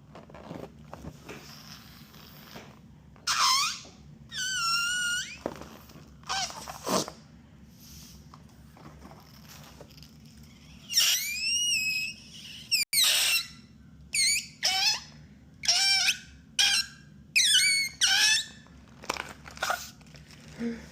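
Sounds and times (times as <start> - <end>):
rubber balloon squeaking: 0.0 - 7.2, 9.0 - 20.0.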